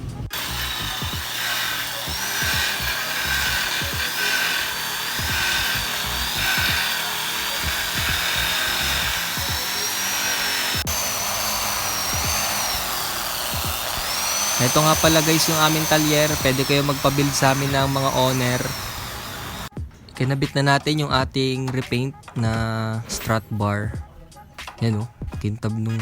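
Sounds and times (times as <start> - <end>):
buffing machine motor whine: 0.0 - 19.7
background music: 0.0 - 26.0.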